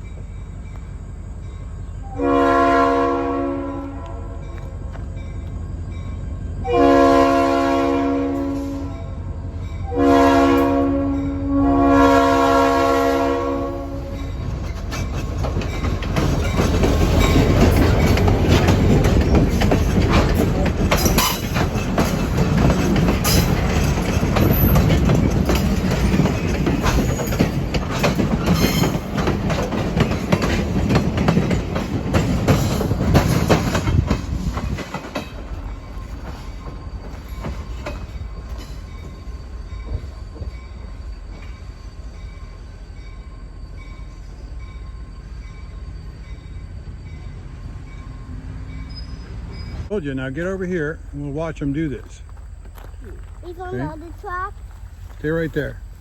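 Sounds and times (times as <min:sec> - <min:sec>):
train rumbling by: 0:00.0 - 0:56.0
train horn: 0:02.0 - 0:04.9, 0:06.6 - 0:14.4
wheels clicking over rail joints: 0:14.1 - 0:41.8, 0:48.8 - 0:56.0.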